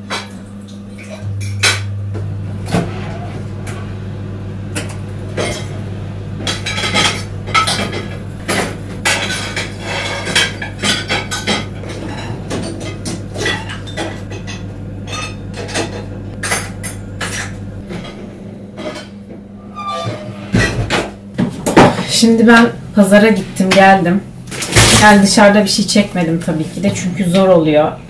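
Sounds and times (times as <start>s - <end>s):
low hum: 0.3s - 21.4s.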